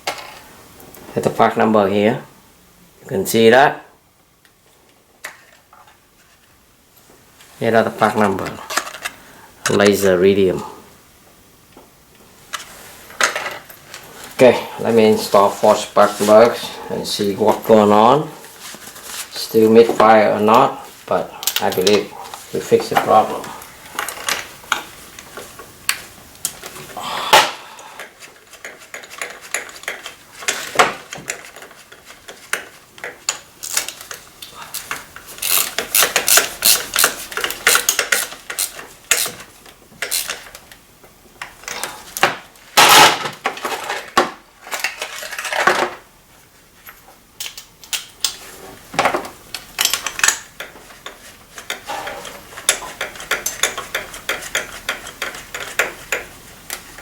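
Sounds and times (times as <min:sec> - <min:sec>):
metal hand tools clinking: 0:21.4 - 0:23.0.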